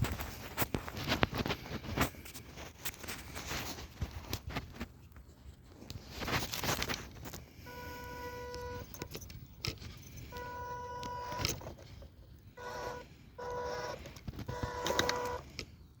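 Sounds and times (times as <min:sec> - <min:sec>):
electric motor and gears whining: 0:07.4 - 0:15.7.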